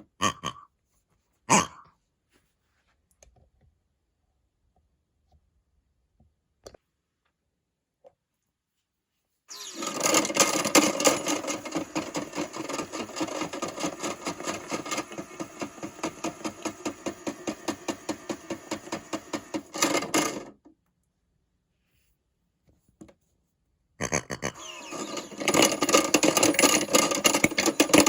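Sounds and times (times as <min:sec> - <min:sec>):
toy washing machine rattling: 0:09.5 - 0:20.6, 0:24.6 - 0:28.0.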